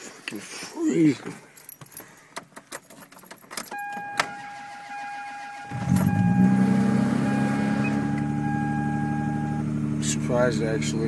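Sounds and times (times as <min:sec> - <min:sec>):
car engine starting and idling: 0:03.7 - 0:11.0.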